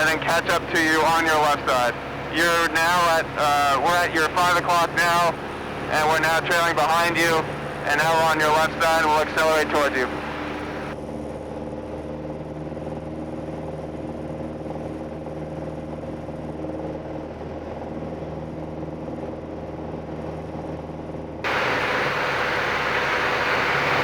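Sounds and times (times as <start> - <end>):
airflow noise: 0.0 - 11.0, 21.5 - 24.0
light aircraft engine drone: 0.0 - 24.0.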